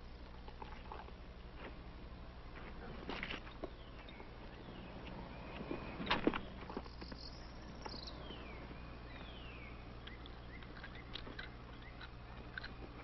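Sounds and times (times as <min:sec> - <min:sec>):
steady low hum: 0:00.0 - 0:13.0
bird chirps: 0:03.5 - 0:12.6.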